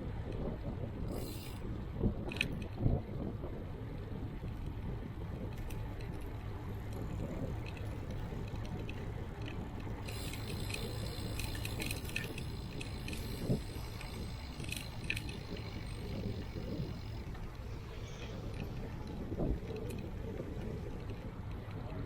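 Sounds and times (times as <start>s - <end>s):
wind and road rumble: 0.0s - 22.0s
scattered ticks: 1.1s - 1.6s, 7.6s - 17.3s
faint high-pitched ringing: 10.0s - 18.2s.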